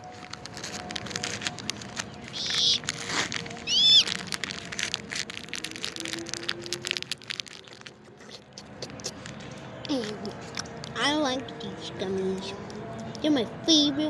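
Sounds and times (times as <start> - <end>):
plastic wrapper crinkling: 0.0 - 11.0
high squeaky chirp: 2.3 - 2.8, 3.6 - 4.1.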